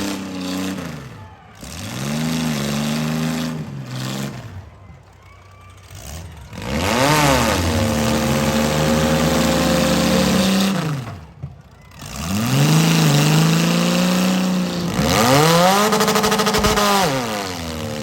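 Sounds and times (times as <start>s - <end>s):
car engine revving: 0.0s - 1.1s, 6.4s - 11.2s, 12.1s - 18.0s.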